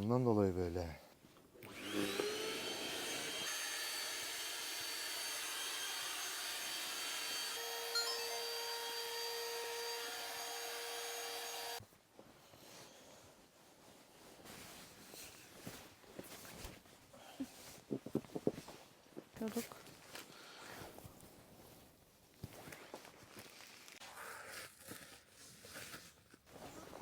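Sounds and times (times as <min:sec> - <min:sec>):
electric blower motor whining: 0:01.6 - 0:11.8.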